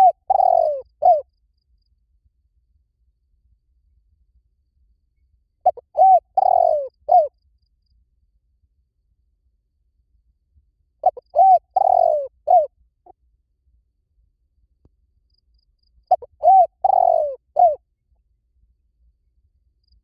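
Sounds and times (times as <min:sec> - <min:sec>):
dove cooing: 0:00.0 - 0:01.3, 0:05.6 - 0:07.3, 0:11.0 - 0:12.7, 0:16.1 - 0:17.8.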